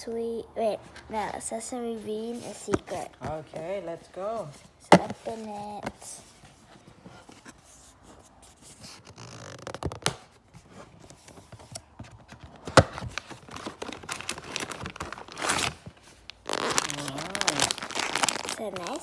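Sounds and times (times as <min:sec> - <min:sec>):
paper and plastic tearing: 0:12.5 - 0:19.0.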